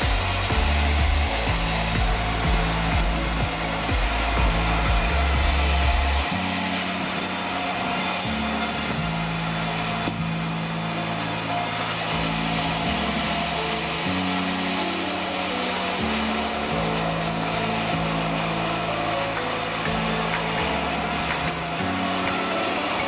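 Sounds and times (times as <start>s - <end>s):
background music with bass line: 0.0s - 14.7s
sawmill saw running: 0.0s - 23.0s.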